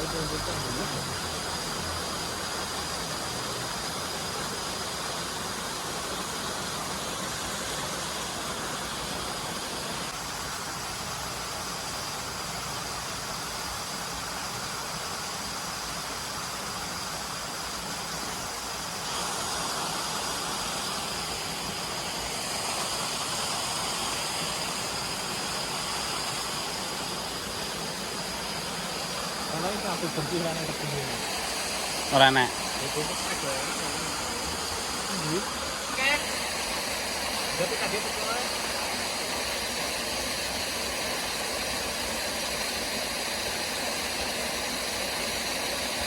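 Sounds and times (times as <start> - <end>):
stream water rushing: 0.0 - 46.0
thin high steady tone: 17.2 - 46.0.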